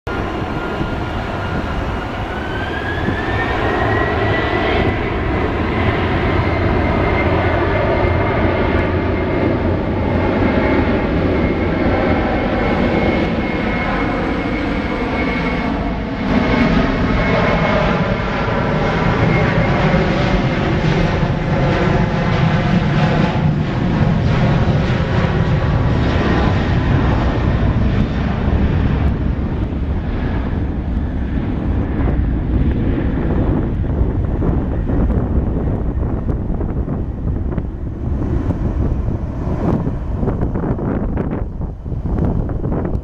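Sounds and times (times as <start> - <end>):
jet engine rumble: 0.0 - 43.0
jet engine whine: 0.0 - 43.0.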